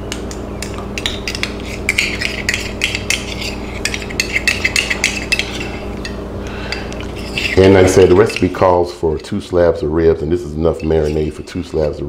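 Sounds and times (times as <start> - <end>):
metal spoon clinking on glass bowl: 0.6 - 8.6, 10.7 - 12.0.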